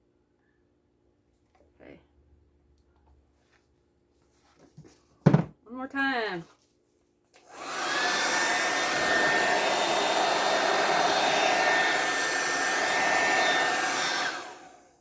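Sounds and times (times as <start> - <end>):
hair dryer running: 7.4 - 15.0.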